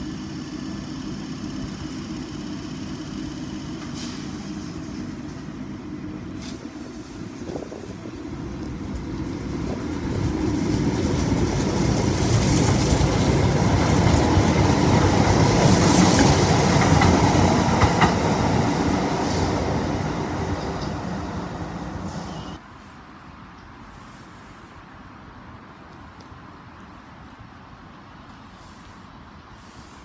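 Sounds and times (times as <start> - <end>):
train running past: 0.0 - 22.9
wheels clicking over rail joints: 7.4 - 22.6.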